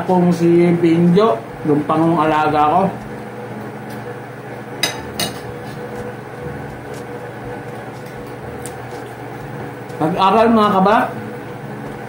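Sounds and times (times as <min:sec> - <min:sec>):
steady background hum: 0:00.0 - 0:12.0
spoon and plates clinking: 0:04.8 - 0:05.5.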